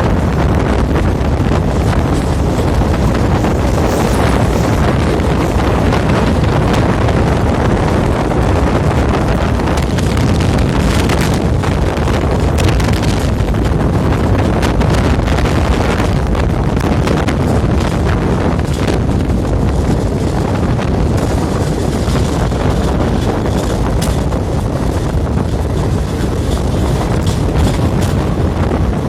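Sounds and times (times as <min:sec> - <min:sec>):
moving train rumble: 0:00.0 - 0:29.0
wind buffeting microphone: 0:00.0 - 0:29.0.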